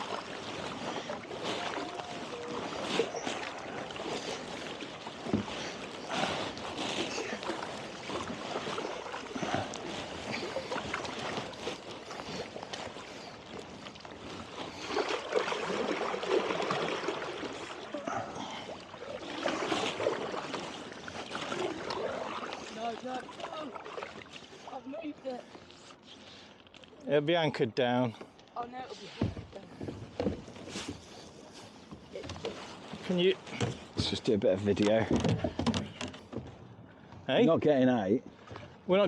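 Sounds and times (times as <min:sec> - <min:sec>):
splashing and dripping: 0:00.0 - 0:24.8
paddles pulling through water: 0:00.0 - 0:39.0.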